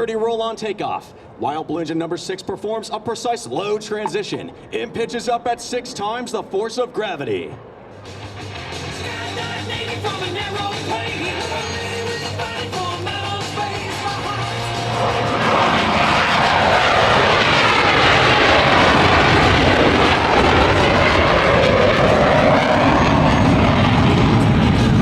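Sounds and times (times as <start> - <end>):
jet flying past: 2.6 - 25.0
music: 7.9 - 15.6.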